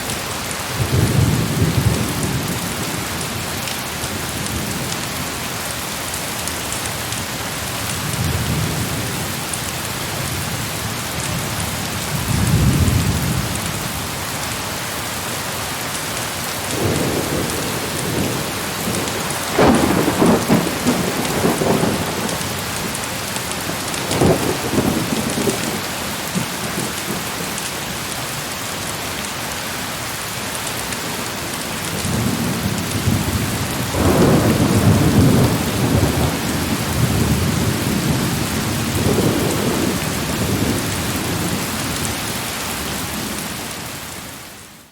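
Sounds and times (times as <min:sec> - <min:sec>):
heavy rain falling: 0:00.0 - 0:44.9
crackling thunderclap: 0:00.8 - 0:03.1, 0:11.3 - 0:13.8, 0:16.6 - 0:27.7, 0:31.0 - 0:42.3
thunder rumbling: 0:16.6 - 0:27.6, 0:31.7 - 0:42.1.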